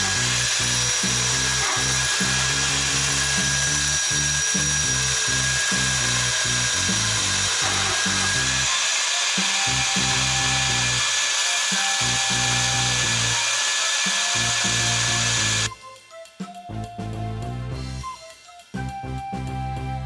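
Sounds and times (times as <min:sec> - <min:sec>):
power tool whining: 0:00.0 - 0:15.8
background music: 0:00.0 - 0:20.0.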